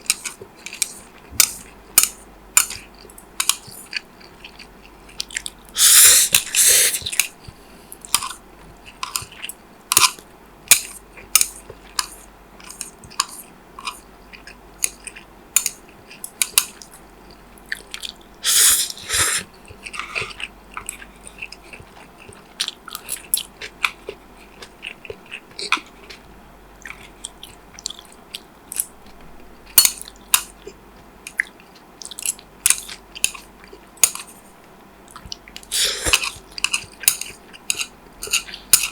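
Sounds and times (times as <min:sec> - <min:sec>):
chewing and biting: 0:00.0 - 0:34.4, 0:35.1 - 0:38.9
food crunches: 0:35.6 - 0:38.9.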